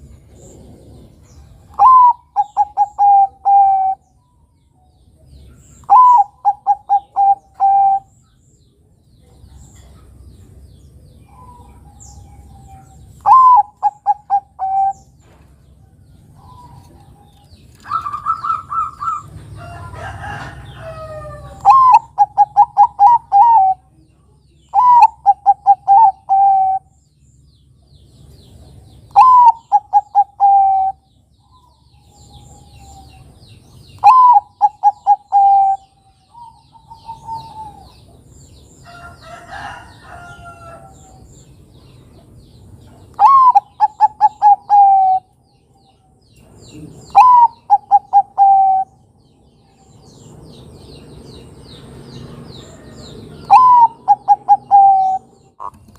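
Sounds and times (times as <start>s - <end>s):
dove cooing: 0.4s - 4.0s, 5.8s - 8.1s, 11.3s - 15.1s, 17.8s - 19.4s, 20.2s - 23.9s, 24.7s - 26.9s, 29.2s - 31.1s, 34.0s - 38.1s, 43.2s - 45.3s, 46.7s - 49.0s, 53.4s - 55.9s.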